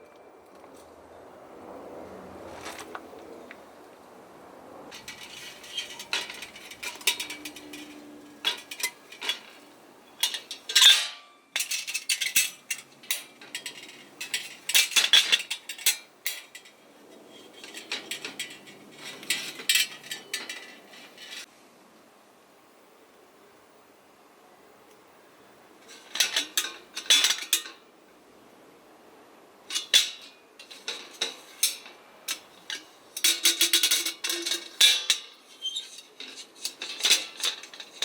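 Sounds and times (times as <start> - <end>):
metal kettles clinking: 4.9 - 21.4, 29.7 - 38.0
metal scrape: 4.9 - 21.5, 29.7 - 38.0.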